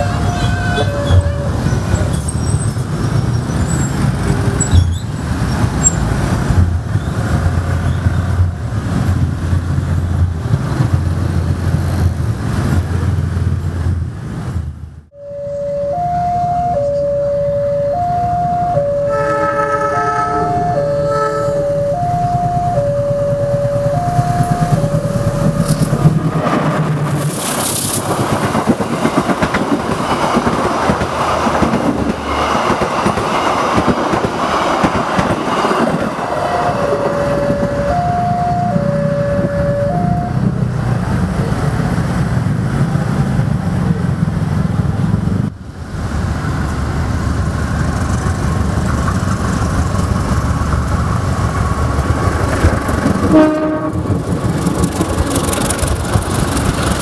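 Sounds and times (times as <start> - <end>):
train wheels clattering on rails: 0.0 - 13.9, 24.2 - 38.1, 46.6 - 57.0
diesel locomotive engine rumble: 0.0 - 57.0
level crossing alarm beeping: 15.2 - 26.0, 35.6 - 40.6.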